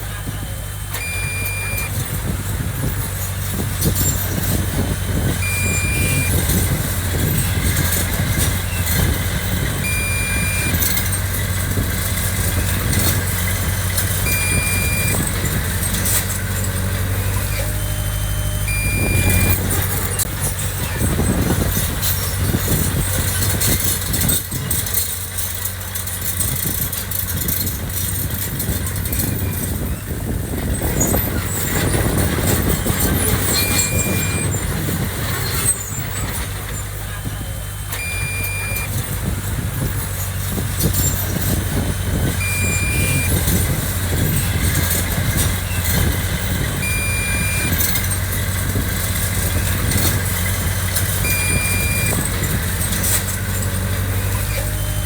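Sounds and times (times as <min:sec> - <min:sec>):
diesel engine running: 0:00.0 - 0:55.0
short high beep: 0:00.9 - 0:02.0, 0:05.4 - 0:06.5, 0:09.8 - 0:11.0, 0:14.2 - 0:15.2, 0:17.5 - 0:19.7, 0:33.5 - 0:34.6, 0:37.2 - 0:39.0, 0:42.4 - 0:43.5, 0:46.8 - 0:48.0, 0:51.2 - 0:52.2.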